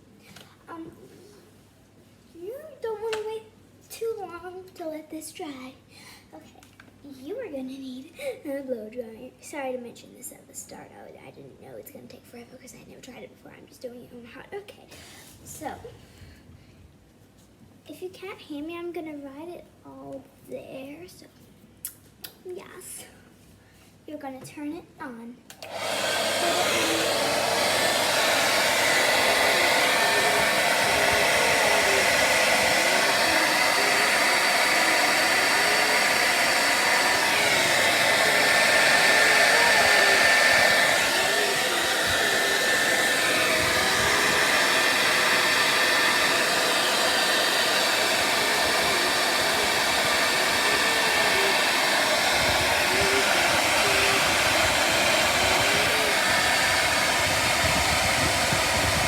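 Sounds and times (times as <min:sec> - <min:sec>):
hair dryer blowing: 0:25.5 - 0:59.0.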